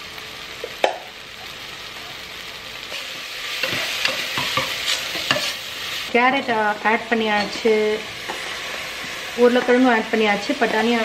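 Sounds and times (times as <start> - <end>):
masala sizzling in a pot: 0.0 - 11.0.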